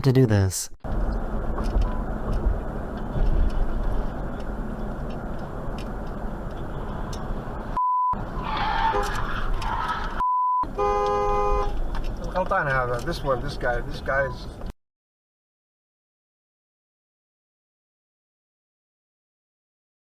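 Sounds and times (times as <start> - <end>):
short steady beep: 7.8 - 8.2, 10.2 - 10.7.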